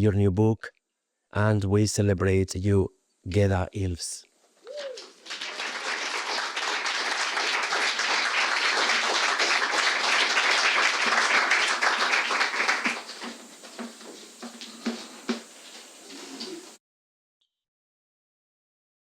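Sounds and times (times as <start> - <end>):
audience applauding: 4.7 - 15.5.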